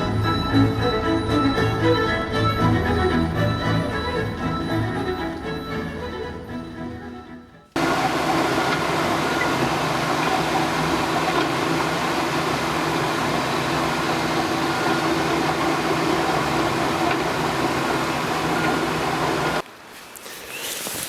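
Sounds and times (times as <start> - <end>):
vehicle engine hum with hiss: 7.8 - 21.0.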